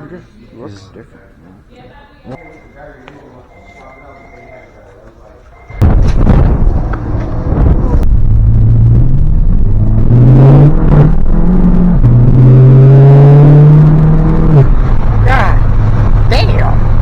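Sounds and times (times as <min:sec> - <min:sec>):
vehicle engine revving: 0:05.8 - 0:17.0.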